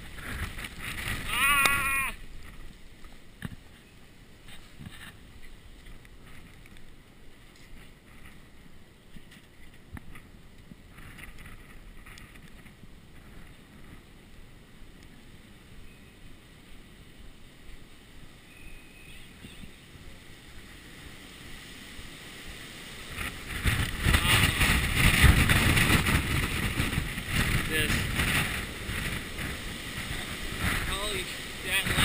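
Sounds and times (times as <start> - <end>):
wind buffeting camera case: 0.0 - 1.4, 9.2 - 14.1, 23.1 - 32.0.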